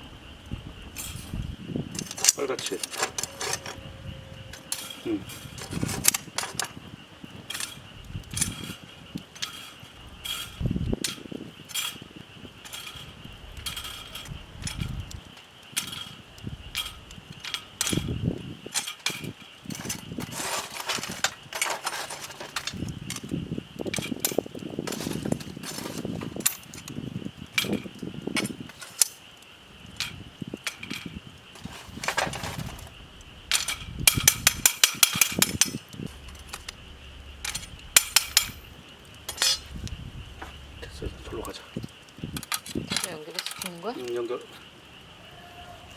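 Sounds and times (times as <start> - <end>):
wood fire crackling and popping: 0.0 - 45.9
high-pitched hum: 2.8 - 6.1, 36.0 - 41.8.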